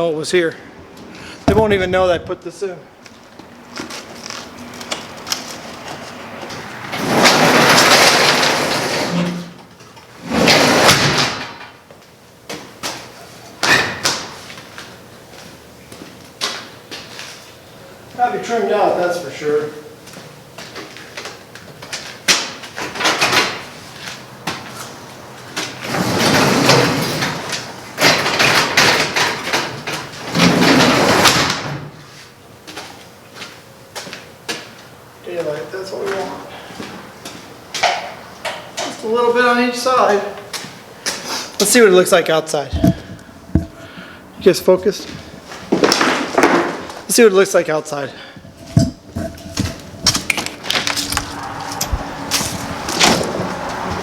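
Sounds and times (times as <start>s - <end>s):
garage door rattling along track: 5.8s - 9.6s, 10.2s - 11.8s, 22.4s - 23.8s, 25.5s - 32.0s.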